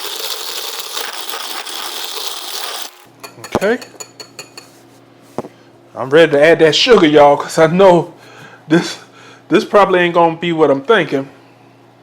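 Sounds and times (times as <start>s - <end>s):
spoon stirring coffee in a mug: 0.0s - 4.7s.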